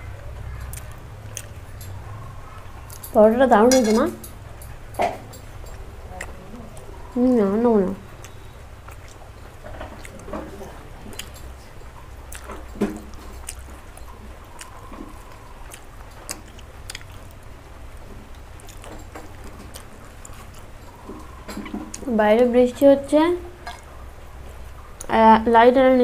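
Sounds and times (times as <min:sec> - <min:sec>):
soft chewing: 0:00.4 - 0:22.2
mouth clicks and smacks: 0:12.3 - 0:14.8, 0:15.6 - 0:17.5.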